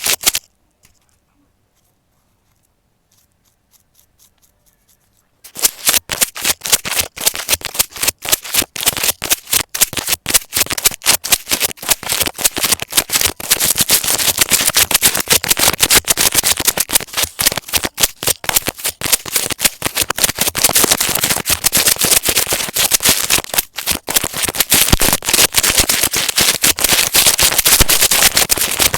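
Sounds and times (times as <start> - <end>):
fast crackling clicks: 0.0 - 1.0, 3.7 - 28.9.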